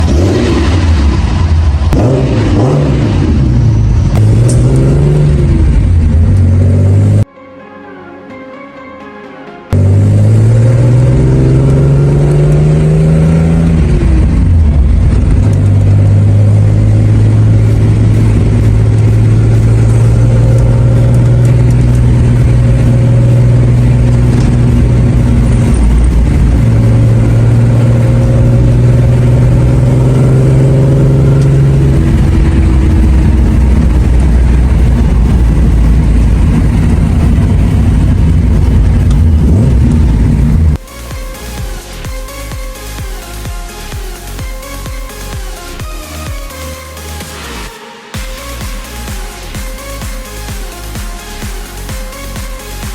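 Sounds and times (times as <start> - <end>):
car engine running loud: 0.0 - 7.3, 9.8 - 40.8.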